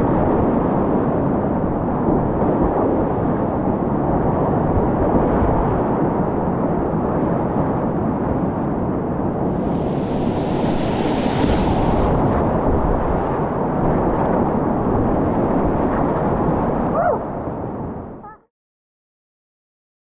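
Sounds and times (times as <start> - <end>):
wind buffeting microphone: 0.0 - 18.3
whitewater rapids rushing: 9.4 - 12.6.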